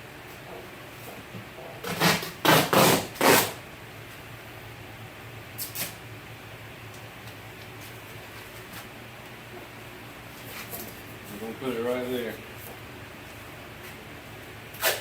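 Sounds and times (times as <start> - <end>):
duct tape ripping: 1.8 - 3.6, 5.6 - 6.0, 14.8 - 15.0.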